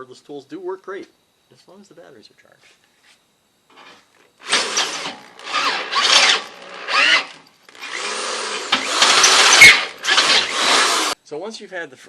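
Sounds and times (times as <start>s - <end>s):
cordless drill boring through steel: 3.7s - 11.2s.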